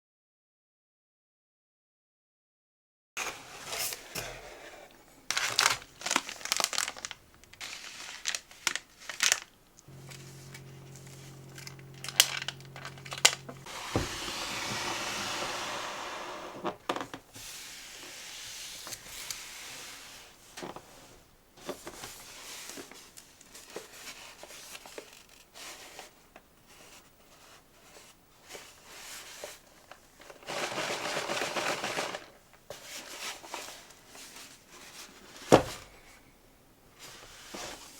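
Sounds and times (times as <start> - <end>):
paper and plastic crinkling: 5.2 - 14.1
low steady hum: 9.7 - 16.8.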